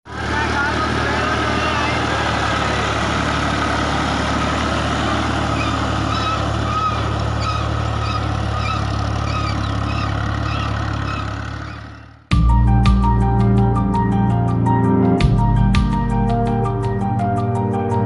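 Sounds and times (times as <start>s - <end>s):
tractor diesel engine running: 0.0s - 12.4s.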